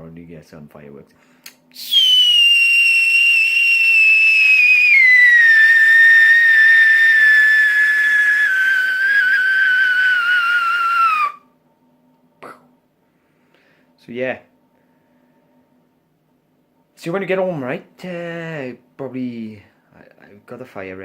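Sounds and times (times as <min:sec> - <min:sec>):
loud high whistle: 0:01.7 - 0:11.5.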